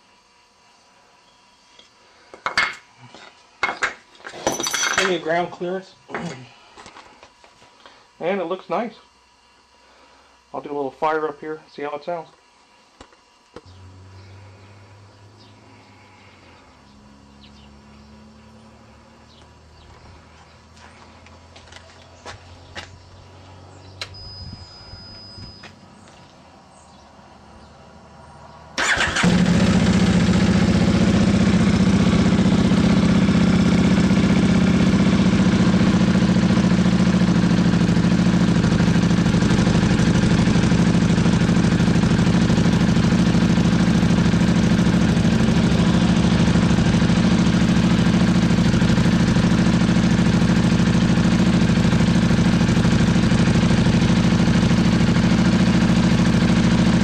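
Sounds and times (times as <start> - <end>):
motorcycle engine starting and running: 13.5 - 27.0, 28.6 - 57.0.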